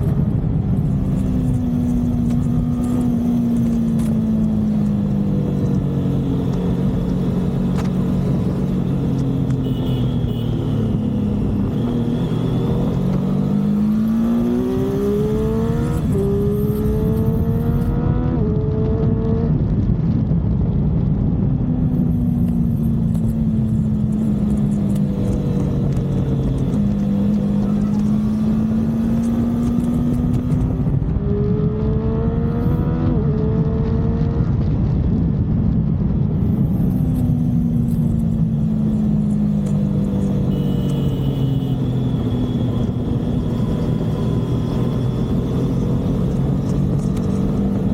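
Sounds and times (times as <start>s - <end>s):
motorcycle engine accelerating: 0.0s - 47.9s
wind rushing at speed: 10.8s - 40.2s.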